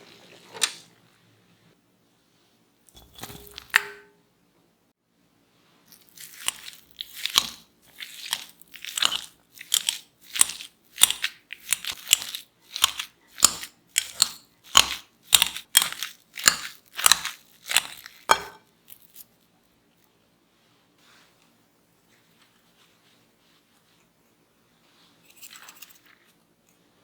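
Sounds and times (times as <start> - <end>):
crisp food crunching: 5.9 - 19.4.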